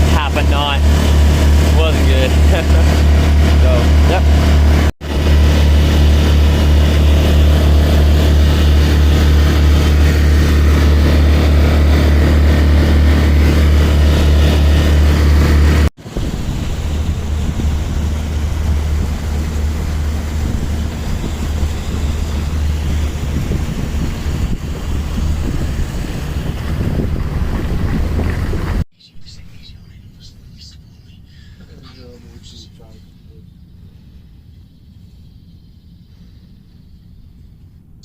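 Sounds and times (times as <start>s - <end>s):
boat motor droning: 0.0s - 28.8s
wind buffeting microphone: 0.0s - 28.8s.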